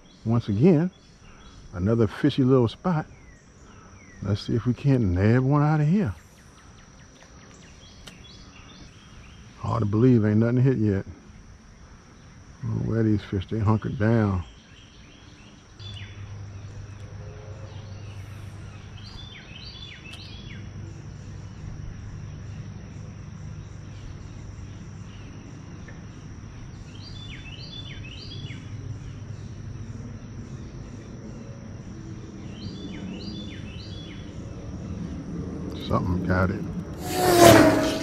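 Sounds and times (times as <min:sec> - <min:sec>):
songbird singing: 0:00.0 - 0:38.0
steady low hum: 0:00.0 - 0:38.0.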